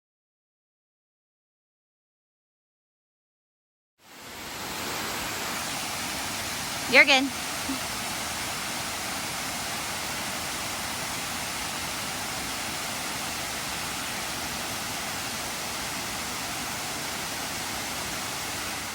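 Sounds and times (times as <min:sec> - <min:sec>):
stream rushing over rocks: 0:04.0 - 0:18.9.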